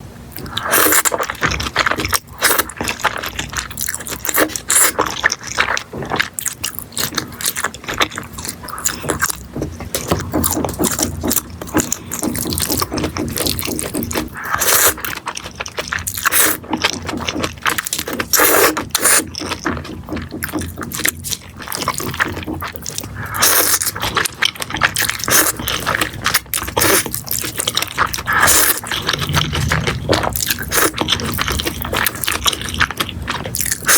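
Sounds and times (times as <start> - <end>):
person slurping noodles: 23.0 - 24.2, 24.9 - 32.9.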